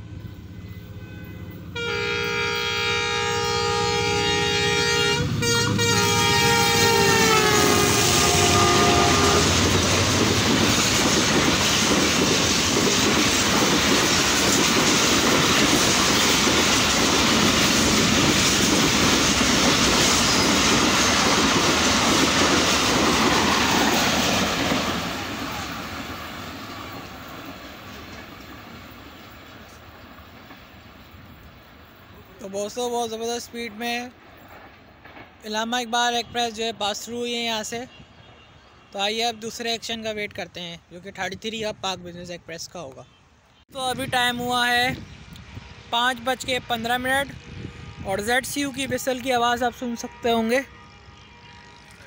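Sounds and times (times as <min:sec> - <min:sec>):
locomotive horn blast: 0:00.5 - 0:09.8, 0:47.2 - 0:52.0
train wheels clickety-clack: 0:09.2 - 0:31.4, 0:34.4 - 0:35.4.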